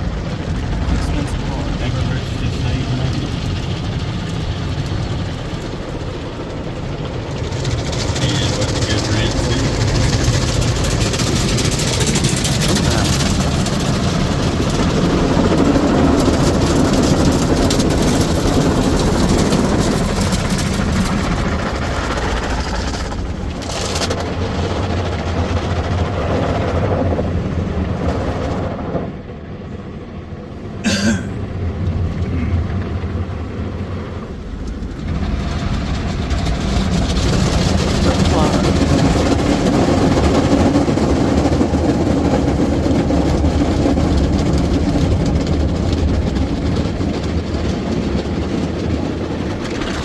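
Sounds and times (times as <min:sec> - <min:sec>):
car engine idling: 0:00.0 - 0:26.4
car wash water spray: 0:00.0 - 0:28.3, 0:30.6 - 0:50.0.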